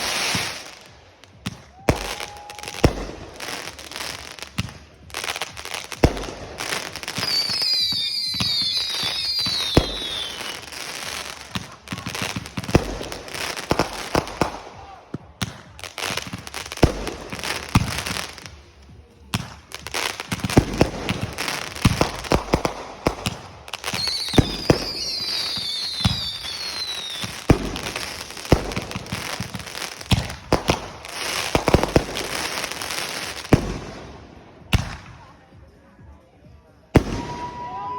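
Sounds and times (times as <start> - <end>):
whistling fireworks falling in pitch: 0.0 - 15.0, 19.8 - 33.5, 37.0 - 37.9
fireworks bangs and crackling: 0.0 - 36.1, 36.8 - 37.9.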